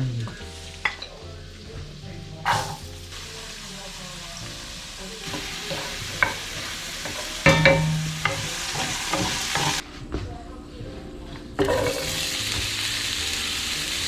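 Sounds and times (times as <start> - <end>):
mushrooms sizzling in a pan: 0.0 - 9.8, 11.6 - 14.0
wooden spoon knocking on pan: 5.3 - 9.8.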